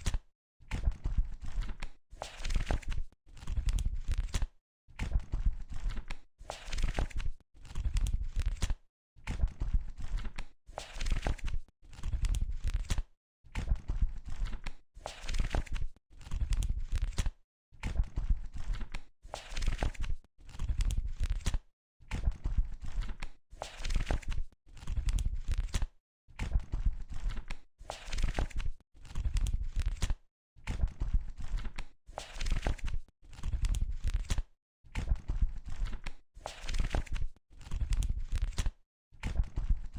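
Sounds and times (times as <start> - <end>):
book pages turning: 2.3 - 3.5, 31.5 - 34.4, 35.8 - 38.7.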